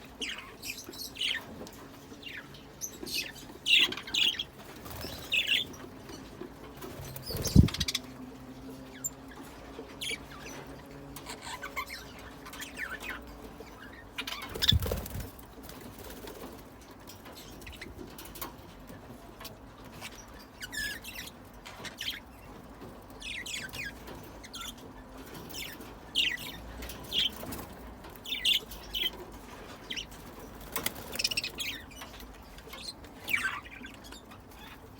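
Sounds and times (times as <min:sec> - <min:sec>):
budgerigars chirping: 0:02.2 - 0:08.2, 0:08.9 - 0:15.3, 0:19.9 - 0:22.6, 0:23.2 - 0:34.9.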